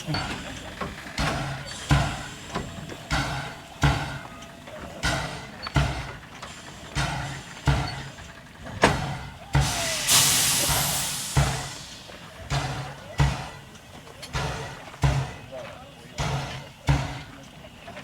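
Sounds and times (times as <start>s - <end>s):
steam locomotive exhaust chuffing: 0.0s - 18.0s
steam hissing: 5.0s - 13.7s.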